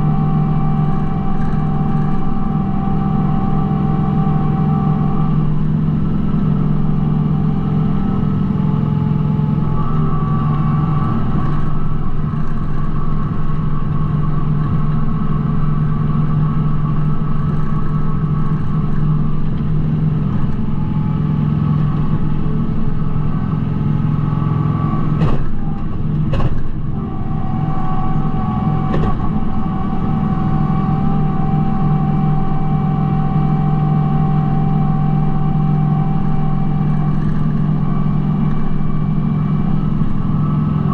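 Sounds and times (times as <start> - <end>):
tractor diesel engine running: 0.0 - 40.9
sharp knocks: 25.2 - 25.6, 26.3 - 26.7.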